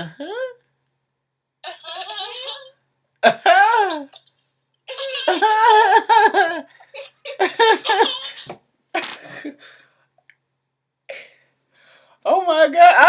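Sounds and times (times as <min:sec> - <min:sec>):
person laughing hard: 0:03.2 - 0:04.1, 0:05.2 - 0:06.7, 0:07.4 - 0:08.4.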